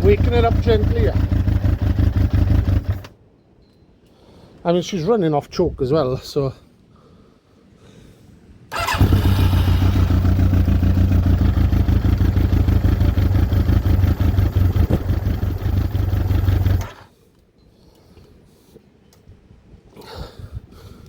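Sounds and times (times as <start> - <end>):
motorcycle engine running: 0.0 - 3.1, 8.7 - 17.1.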